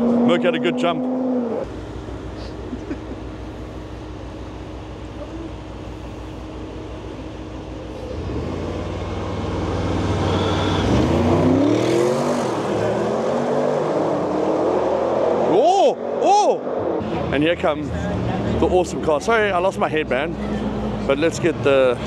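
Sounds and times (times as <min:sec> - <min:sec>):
low engine rumble: 0:01.6 - 0:11.4
car engine accelerating: 0:07.1 - 0:22.0.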